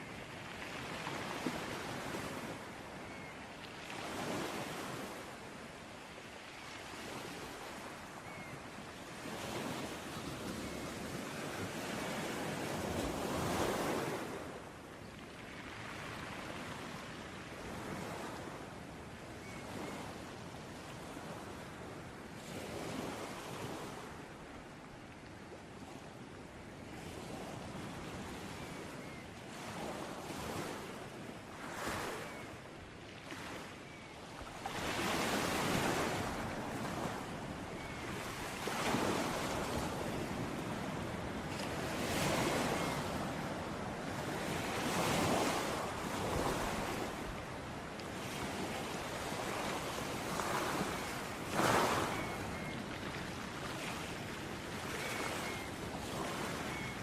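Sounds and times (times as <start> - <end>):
sea waves breaking: 34.6 - 57.0.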